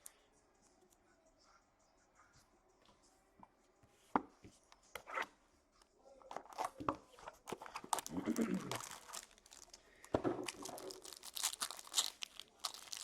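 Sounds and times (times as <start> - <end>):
cards handling knocks and rustling: 6.3 - 9.3, 10.1 - 13.0.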